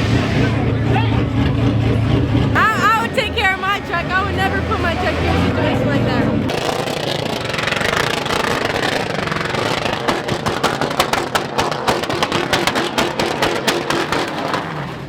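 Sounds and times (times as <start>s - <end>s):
truck engine revving high: 0.0s - 15.0s
sharp exhaust pops and cracks: 6.4s - 15.0s.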